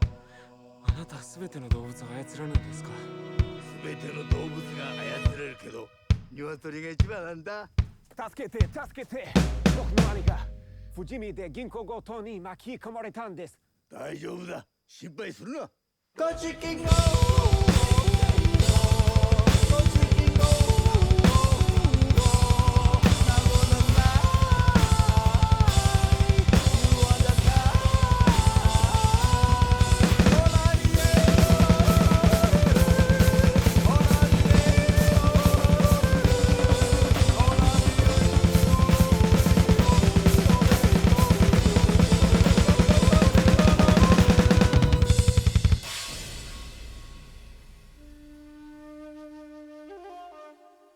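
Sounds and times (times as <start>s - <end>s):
drum kit fast beat: 8.6s - 10.6s, 16.8s - 48.1s.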